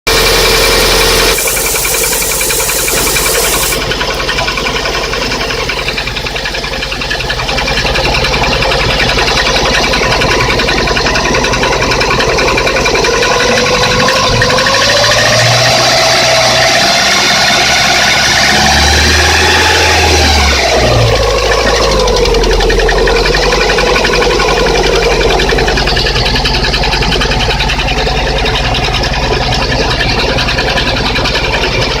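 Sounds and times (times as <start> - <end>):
engine piston knocking: 0.1 - 32.0
thin whine: 0.2 - 6.6.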